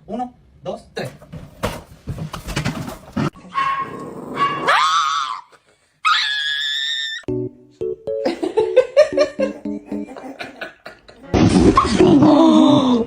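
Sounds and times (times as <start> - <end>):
music: 7.3 - 10.1.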